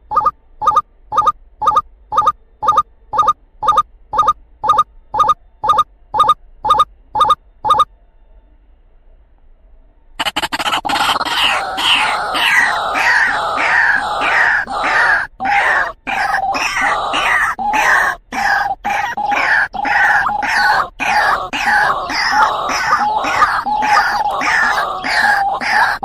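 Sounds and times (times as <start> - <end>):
waterhen calling: 10.9 - 26.0.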